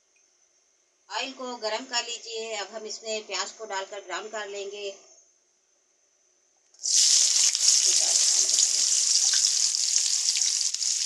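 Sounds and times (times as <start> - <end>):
onions sizzling in hot oil: 6.8 - 11.0.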